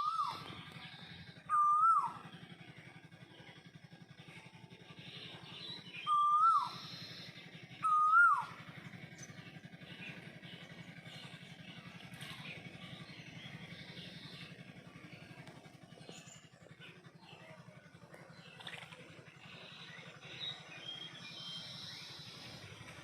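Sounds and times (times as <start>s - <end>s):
bird whistled calls: 0.0s - 2.3s, 5.6s - 9.3s, 19.6s - 22.7s
steady low hum: 0.0s - 23.0s.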